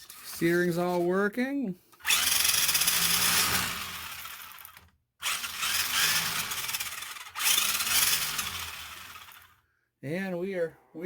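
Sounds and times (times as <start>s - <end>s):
toy car electric motor whirring: 1.9s - 9.6s.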